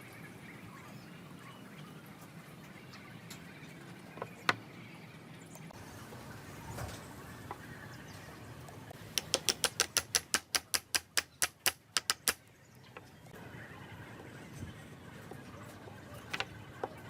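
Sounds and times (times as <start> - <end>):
sharp taps: 9.1 - 12.4.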